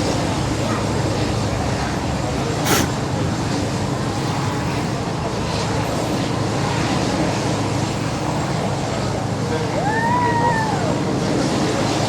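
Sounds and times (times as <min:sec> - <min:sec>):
engine rumble: 0:00.0 - 0:12.0.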